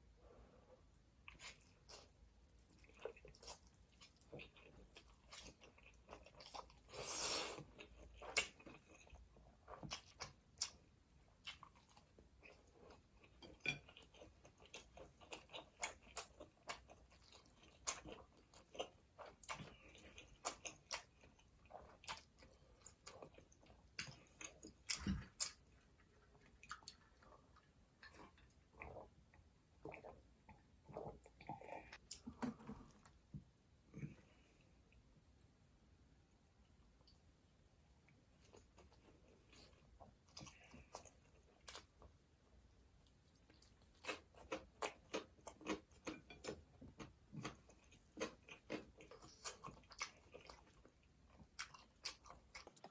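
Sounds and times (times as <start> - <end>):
chewing and biting food: 1.3 - 32.2, 43.0 - 52.9.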